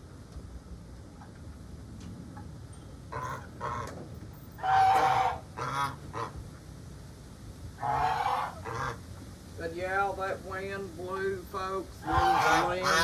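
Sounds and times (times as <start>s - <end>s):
geese honking: 3.1s - 3.9s, 4.6s - 6.4s, 7.8s - 9.0s, 12.0s - 13.0s.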